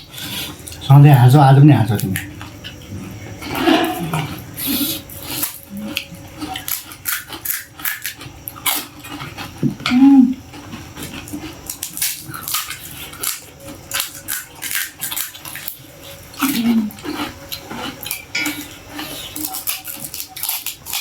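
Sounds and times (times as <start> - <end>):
crunching and wet chewing: 0.0 - 21.0
person humming: 9.7 - 10.4, 16.4 - 17.0.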